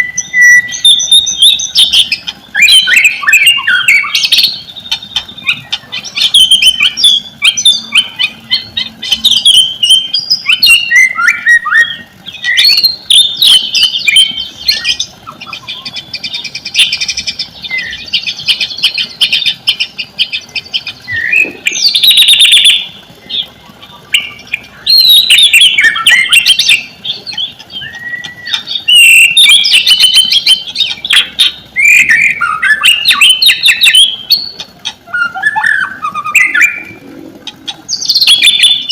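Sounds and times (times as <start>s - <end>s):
bird singing varied song: 0.0s - 38.9s.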